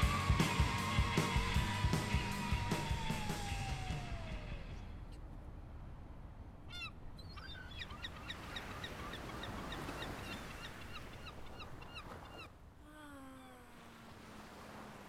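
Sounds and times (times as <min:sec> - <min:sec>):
small waves on pebble shore: 0:13.6 - 0:15.0.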